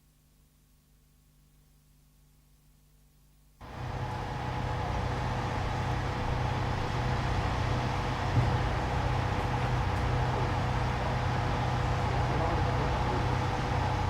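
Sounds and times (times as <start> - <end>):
street noise: 3.6 - 14.0
vehicle engine running: 3.6 - 14.0.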